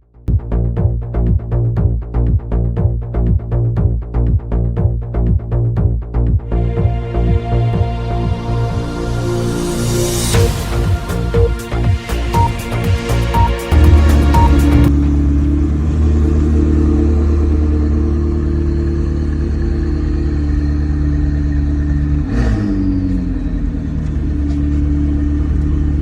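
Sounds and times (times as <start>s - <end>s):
electronic music: 0.3s - 15.0s.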